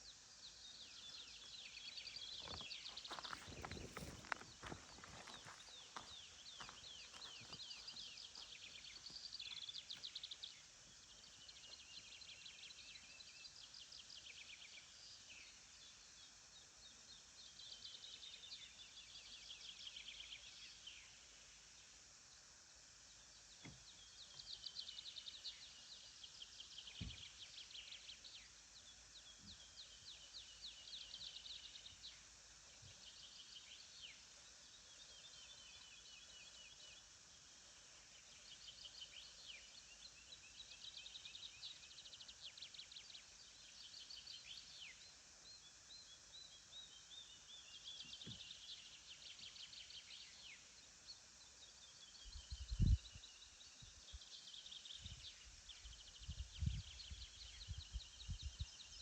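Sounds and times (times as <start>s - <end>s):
songbirds trilling: 0.0s - 14.2s
faint steady hiss: 0.0s - 59.0s.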